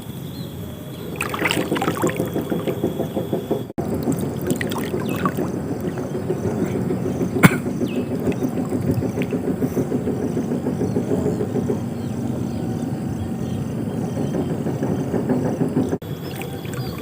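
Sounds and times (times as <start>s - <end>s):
water sloshing around wader: 1.0s - 11.4s, 16.0s - 17.0s.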